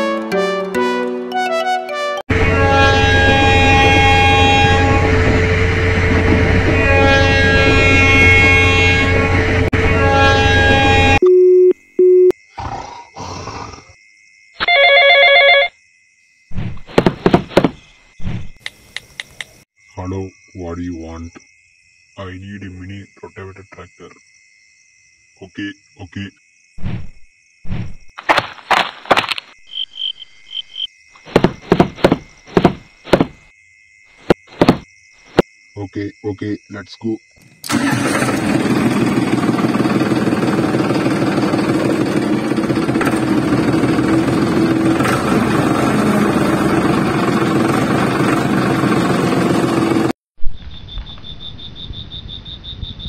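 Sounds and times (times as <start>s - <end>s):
short beeps: 11.2s - 12.4s
insect trill: 11.8s - 16.6s, 17.8s - 28.2s, 29.5s - 37.6s, 50.4s - 53.0s
snoring rasps: 12.5s - 14.0s
pulsing telephone ring: 14.6s - 15.7s
heavy thudding footsteps: 16.6s - 18.6s, 31.2s - 33.5s, 34.2s - 35.4s.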